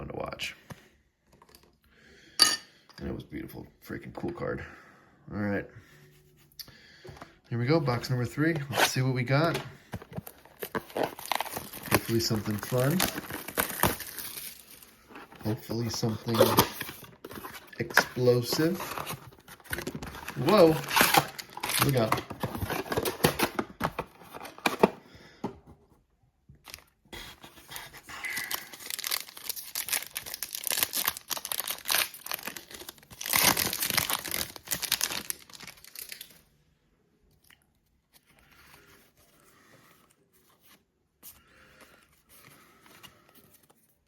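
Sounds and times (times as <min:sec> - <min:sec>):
cards rustling: 0:07.1 - 0:25.0, 0:26.6 - 0:36.5
plastic packaging tearing and crinkling: 0:08.3 - 0:24.8, 0:27.6 - 0:36.5.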